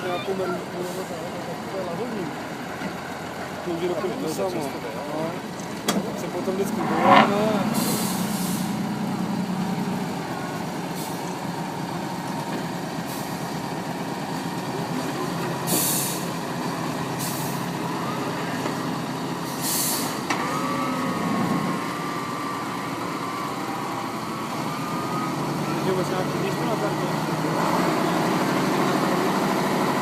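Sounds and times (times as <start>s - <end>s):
truck engine revving: 0.0s - 30.0s
air release hisses: 7.8s - 8.8s, 15.7s - 16.3s, 19.5s - 20.2s.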